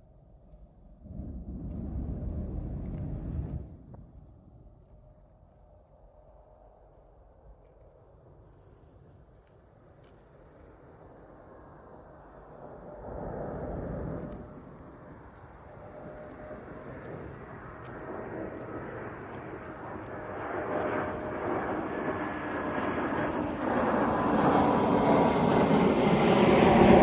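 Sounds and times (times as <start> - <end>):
jet airliner engine with whine: 0.0 - 27.0.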